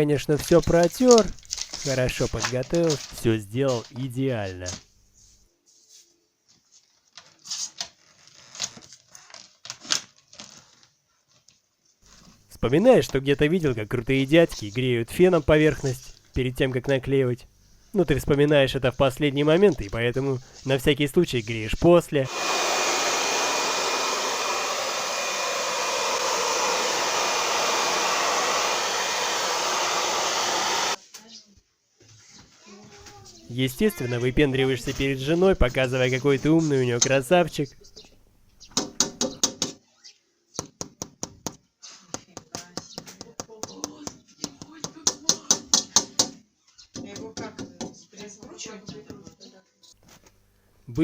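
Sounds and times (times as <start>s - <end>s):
hair dryer blowing: 22.3s - 31.0s.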